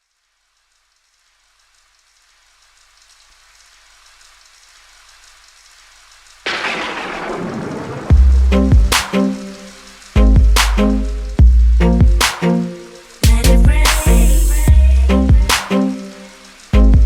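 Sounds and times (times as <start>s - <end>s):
rain hiss: 0.0s - 17.0s
thunderclap rumbling: 6.5s - 12.2s
music with heavy bass beat: 8.1s - 9.6s, 10.2s - 16.1s, 16.7s - 17.0s.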